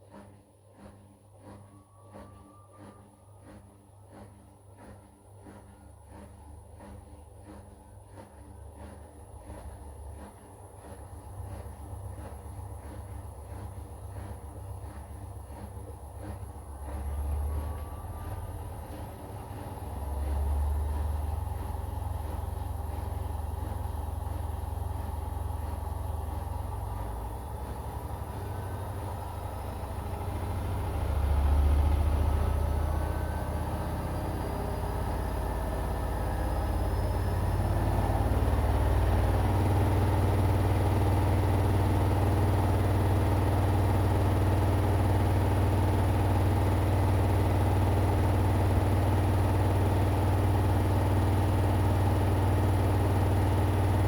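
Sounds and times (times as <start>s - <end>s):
washing machine motor hum: 3.0s - 54.0s.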